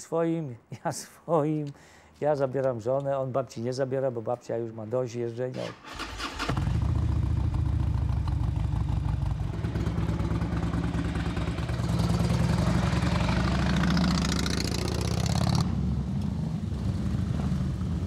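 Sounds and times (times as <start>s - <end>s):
motorcycle engine running: 6.5s - 16.0s.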